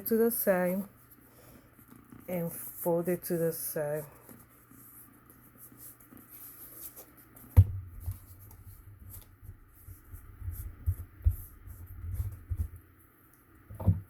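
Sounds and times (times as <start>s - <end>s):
card rustling: 4.0s - 10.0s
sharp knock on cardboard: 7.6s - 7.8s.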